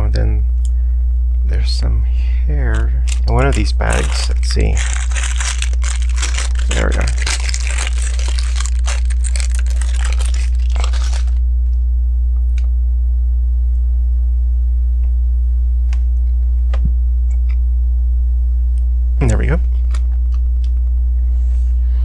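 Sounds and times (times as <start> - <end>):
low electrical hum: 0.0 - 22.0
plastic bag crinkling: 2.7 - 11.4
plastic pieces clicking: 2.8 - 11.4.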